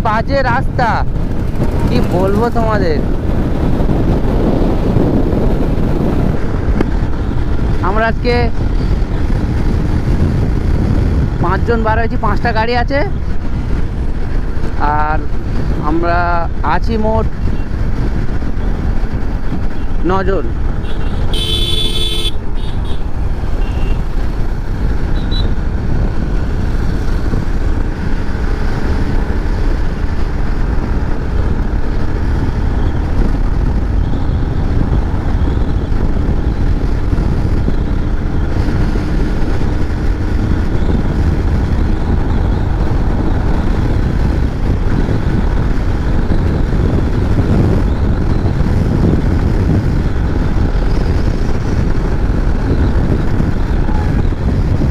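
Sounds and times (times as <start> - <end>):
motorcycle engine and road noise: 0.0 - 54.9
wind rushing over microphone: 0.0 - 54.9
vehicle horn: 20.8 - 23.0, 23.6 - 24.0.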